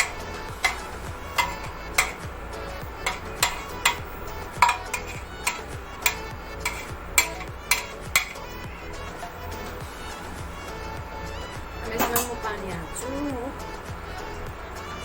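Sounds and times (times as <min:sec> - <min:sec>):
metal spoon clinking on pot: 0:00.0 - 0:08.5, 0:12.0 - 0:12.5.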